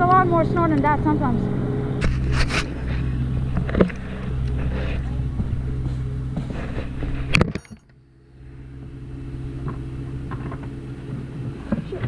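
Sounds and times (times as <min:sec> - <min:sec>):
engine running at low speed: 0:00.0 - 0:12.0
sharp clatter: 0:06.4 - 0:08.0.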